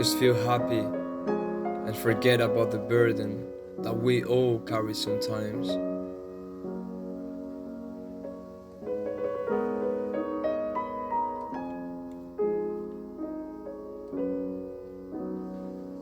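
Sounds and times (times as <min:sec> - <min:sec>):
gentle solo piano: 0:00.0 - 0:16.0.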